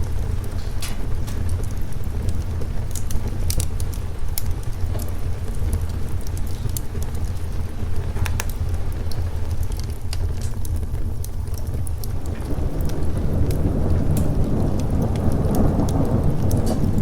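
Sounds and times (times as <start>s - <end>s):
fireplace crackling and popping: 0.0s - 17.0s
rain: 0.0s - 17.0s
thunder rumble: 10.3s - 17.0s.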